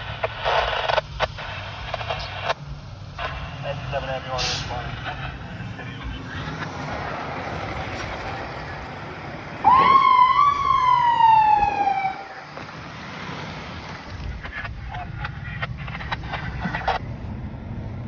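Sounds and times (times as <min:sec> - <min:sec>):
vehicle and road noise: 0:00.0 - 0:18.0
fire truck siren wail: 0:04.4 - 0:13.9.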